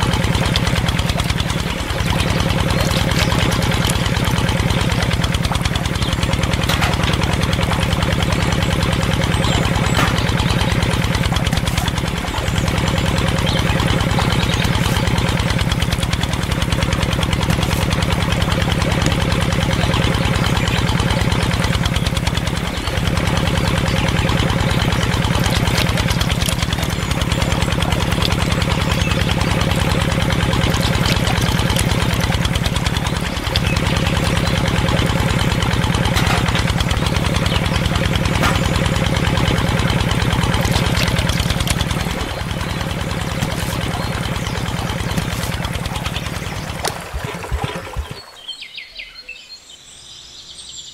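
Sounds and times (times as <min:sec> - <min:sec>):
small engine idling: 0:00.0 - 0:49.4.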